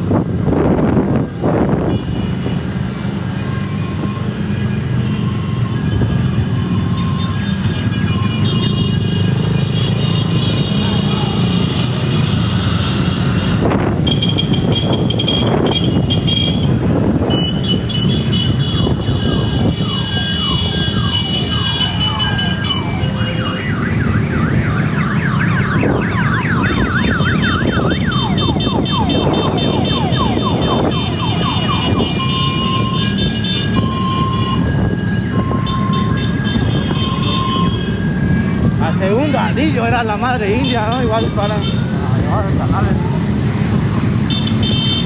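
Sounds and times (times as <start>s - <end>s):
motorcycle engines rumbling: 0.0s - 45.0s
vehicle horns: 1.8s - 2.7s, 4.0s - 38.1s, 43.9s - 45.0s
electronic siren tones: 19.2s - 39.7s.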